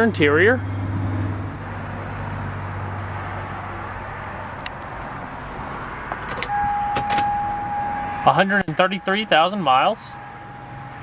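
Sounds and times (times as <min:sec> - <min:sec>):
outdoor background noise: 0:00.0 - 0:11.0
car engine idling: 0:00.2 - 0:08.2.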